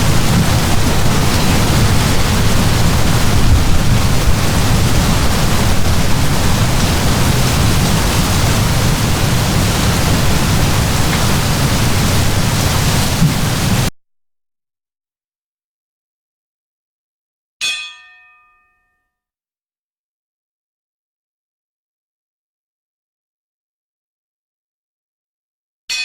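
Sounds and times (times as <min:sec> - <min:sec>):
heavy rain downpour: 0:00.0 - 0:13.9
low rumble: 0:00.0 - 0:13.9.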